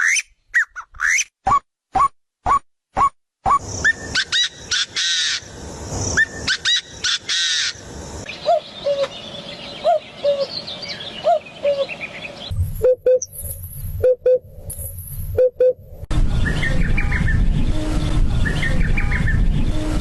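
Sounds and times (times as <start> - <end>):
several birds calling: 3.5 - 12.6.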